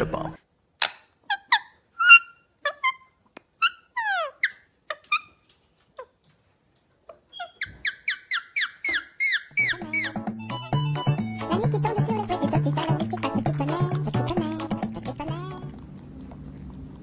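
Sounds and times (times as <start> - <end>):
small bird chirping: 7.1 - 10.3.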